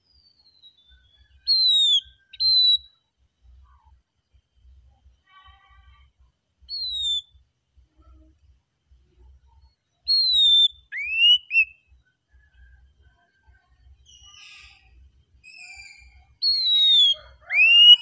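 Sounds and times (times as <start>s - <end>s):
bird whistling song: 0.0s - 3.0s, 6.7s - 7.4s, 10.0s - 11.9s, 14.0s - 18.0s.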